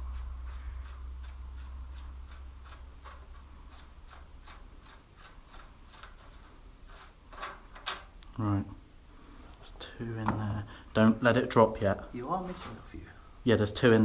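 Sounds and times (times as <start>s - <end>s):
faint regular ticking: 0.0s - 6.4s.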